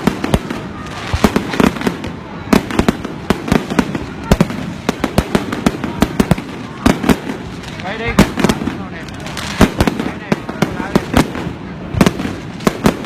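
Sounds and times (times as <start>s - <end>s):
fireworks bangs and cracks: 0.0s - 13.0s
rumbling of fireworks bursts: 0.0s - 13.0s.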